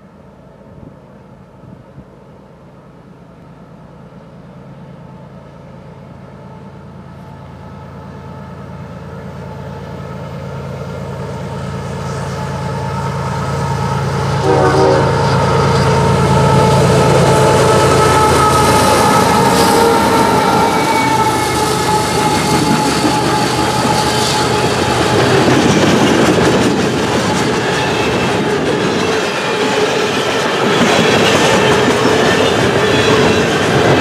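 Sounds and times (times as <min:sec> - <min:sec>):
diesel locomotive engine drone: 0:00.0 - 0:34.0
train horn: 0:12.0 - 0:25.6.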